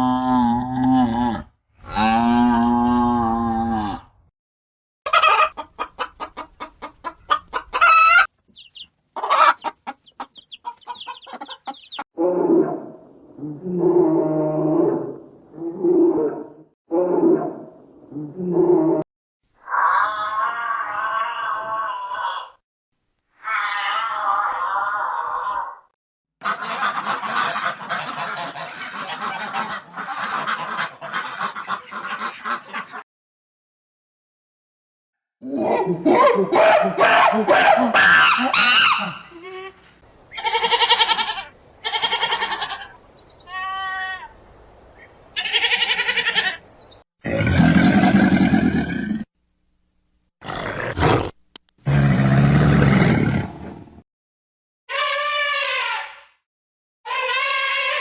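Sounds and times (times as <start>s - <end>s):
chickens clucking: 5.1s - 12.0s, 26.4s - 33.0s
flock of waterfowl calling: 5.1s - 12.0s, 26.4s - 33.0s
thin chirps: 8.5s - 8.9s, 9.6s - 12.0s
drawn-out animal roar: 47.2s - 49.3s.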